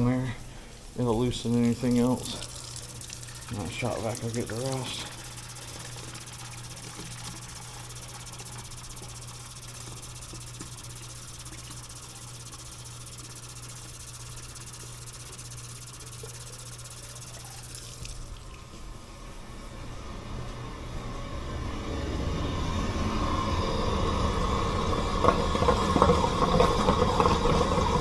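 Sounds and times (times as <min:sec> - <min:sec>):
shop vacuum running: 0:00.0 - 0:28.0.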